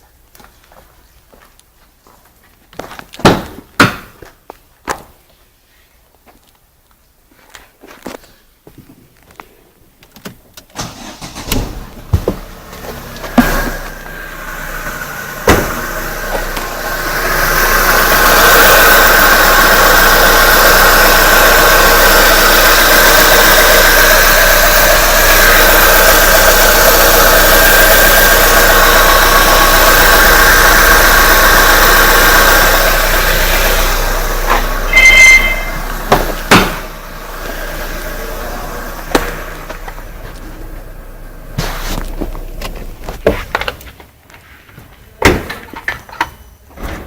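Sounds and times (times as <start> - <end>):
car engine running: 10.8 - 43.8
sharp knocks: 34.5 - 36.9
brief high-pitched tone: 34.9 - 36.0.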